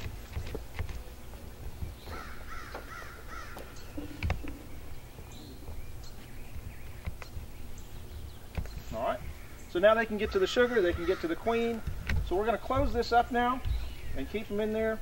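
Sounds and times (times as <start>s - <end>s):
bird calling: 0.0s - 15.0s
wooden hive parts clattering: 10.2s - 14.8s.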